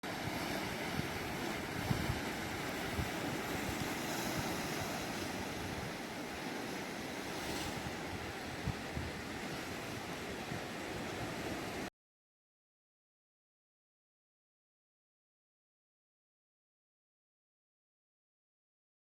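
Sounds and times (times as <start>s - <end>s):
ocean surf washing ashore: 0.0s - 11.9s
wind buffeting microphone: 0.0s - 11.9s.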